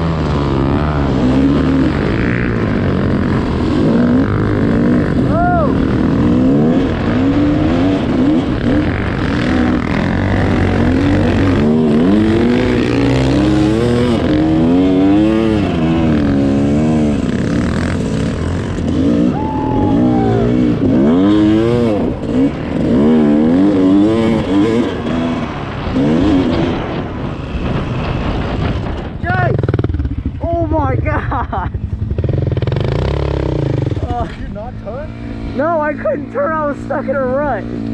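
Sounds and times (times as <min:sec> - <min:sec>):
dirt bike engine revving: 0:00.0 - 0:37.9.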